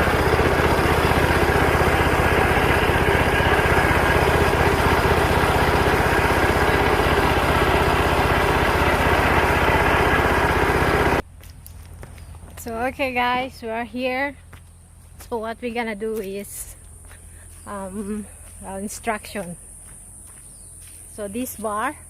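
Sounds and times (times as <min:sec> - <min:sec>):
small tractor engine running: 0:00.0 - 0:11.2.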